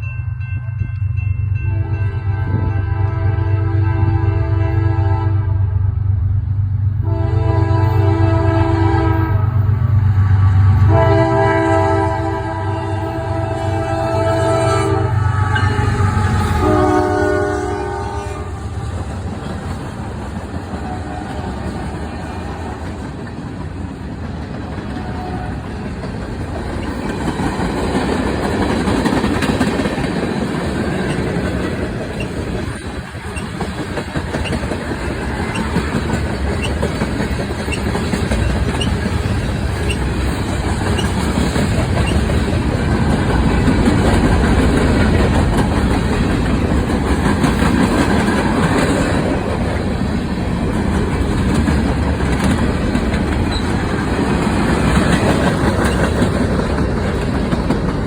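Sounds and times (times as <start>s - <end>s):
train rolling past: 0.0s - 58.0s
train horn blasts: 1.6s - 5.9s, 7.0s - 19.1s, 20.7s - 21.7s, 24.9s - 25.8s
wheels clattering on rails: 18.9s - 58.0s.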